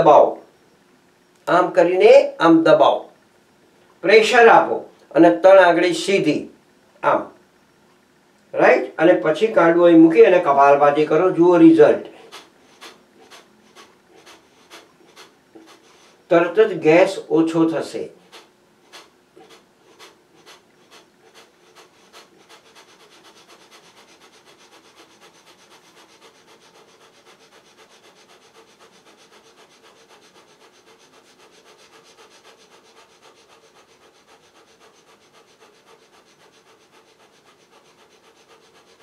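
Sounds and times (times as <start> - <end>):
forceful nasal exhalations: 12.1 - 16.3, 18.2 - 39.0.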